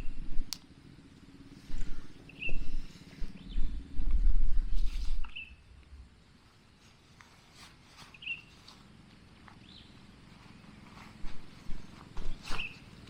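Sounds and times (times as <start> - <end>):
low rumbling: 0.0 - 6.4
high bird chirp: 2.2 - 3.8, 5.2 - 5.7, 8.1 - 8.6, 12.3 - 12.9.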